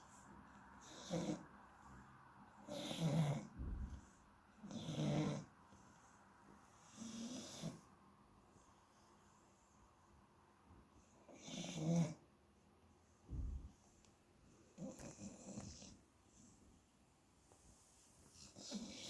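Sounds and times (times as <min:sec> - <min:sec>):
dog rasping snores: 0:00.8 - 0:01.5, 0:02.6 - 0:03.6, 0:04.6 - 0:05.5, 0:06.8 - 0:07.8, 0:11.3 - 0:12.2, 0:14.8 - 0:16.0, 0:18.4 - 0:19.0.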